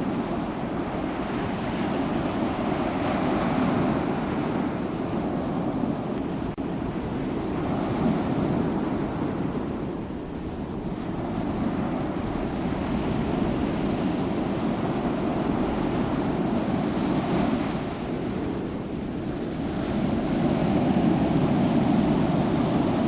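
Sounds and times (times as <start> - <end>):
sea waves washing on shore: 0.0 - 23.0.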